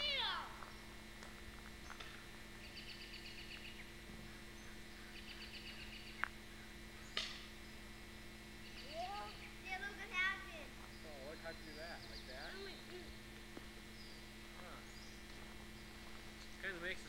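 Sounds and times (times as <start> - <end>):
low electrical hum: 0.0 - 17.0
trilled bird song: 1.8 - 7.9, 8.5 - 9.9, 10.8 - 13.0, 13.8 - 16.8.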